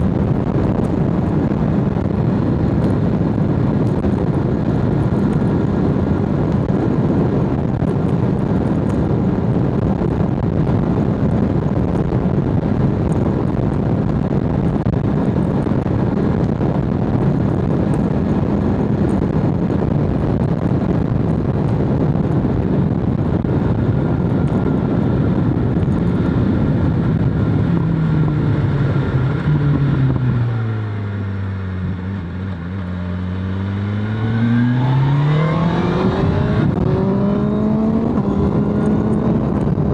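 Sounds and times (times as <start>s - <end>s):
wind rush: 0.0s - 39.9s
motorcycle engine revving: 23.5s - 39.9s.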